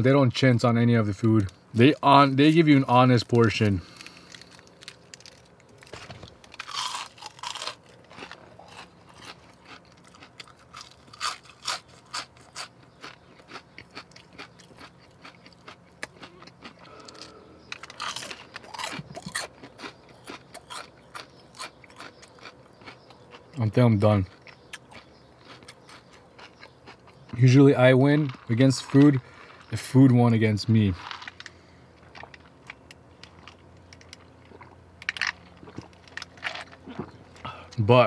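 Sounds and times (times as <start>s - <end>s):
onion ring crunching: 3.3s - 23.5s.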